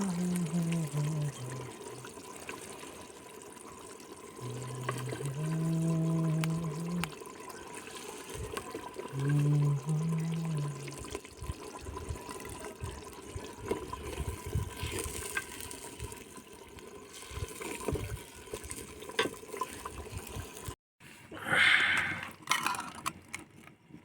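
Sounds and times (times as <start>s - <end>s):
liquid sloshing: 0.0s - 20.8s.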